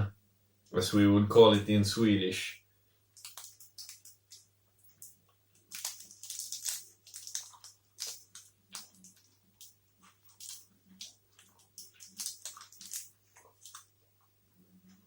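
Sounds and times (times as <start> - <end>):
person chewing wetly: 3.2 - 13.9.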